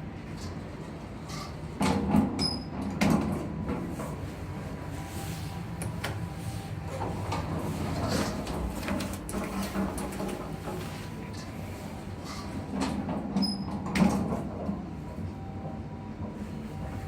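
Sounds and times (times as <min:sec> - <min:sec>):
elevator machinery and door noise: 0:00.0 - 0:17.0.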